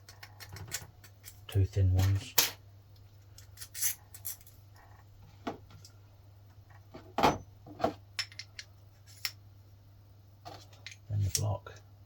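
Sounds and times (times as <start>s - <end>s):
small steel parts clinking: 3.4s - 4.6s.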